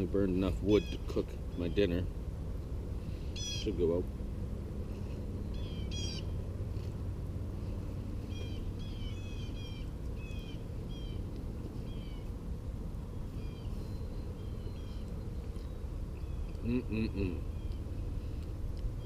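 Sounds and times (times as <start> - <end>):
bird chirping: 0.4 - 2.1, 5.0 - 6.4, 8.2 - 12.4, 13.0 - 18.0.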